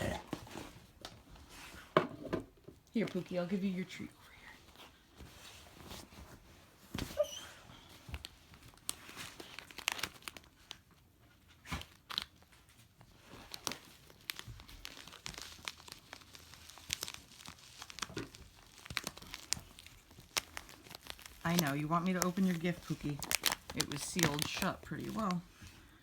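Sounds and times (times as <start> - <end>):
gift packaging crumpled and torn: 8.2 - 26.0.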